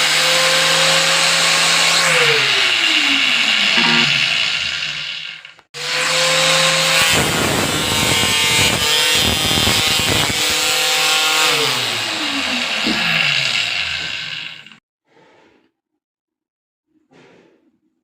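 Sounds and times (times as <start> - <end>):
angle grinder motor whine: 0.0 - 14.8
disc grinding plastic rasping: 1.6 - 5.5, 6.9 - 14.8.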